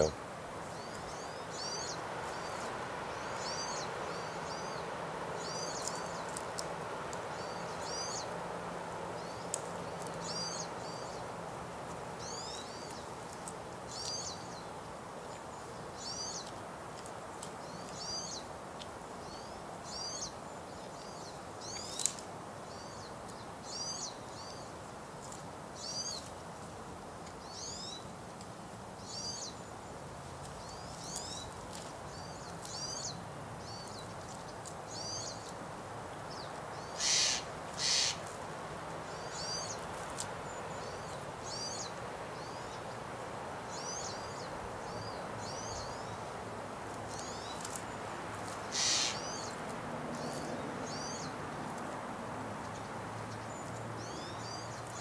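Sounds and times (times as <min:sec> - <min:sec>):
small bird calling: 0:00.0 - 0:08.4, 0:09.2 - 0:11.3, 0:36.3 - 0:38.4, 0:39.0 - 0:39.9, 0:47.1 - 0:49.6
background hiss: 0:00.0 - 0:55.0.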